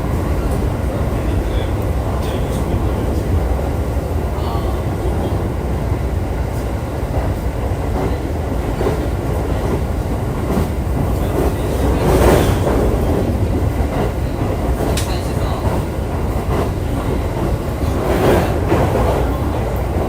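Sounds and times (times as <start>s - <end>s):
train wheels rumbling on rails: 0.0s - 20.0s
faint rail-joint clicks: 14.8s - 15.3s.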